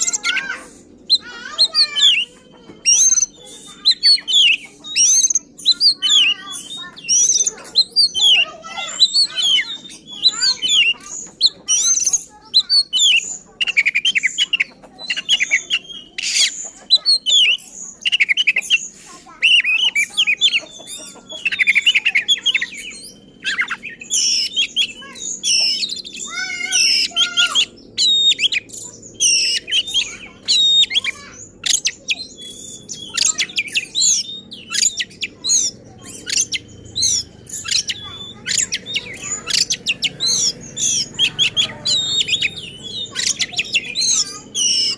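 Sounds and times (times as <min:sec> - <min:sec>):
bird singing harsh chirps: 0:00.0 - 0:44.9.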